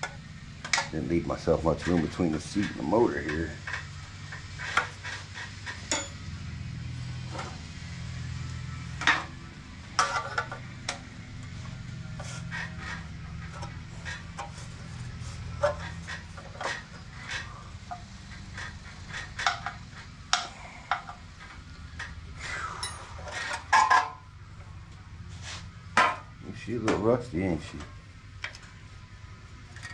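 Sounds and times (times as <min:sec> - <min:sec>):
steady low hum: 0:00.0 - 0:29.9
metal parts clinking and knocking: 0:04.6 - 0:06.3, 0:22.8 - 0:24.2
sharp metal clank: 0:05.8 - 0:06.3.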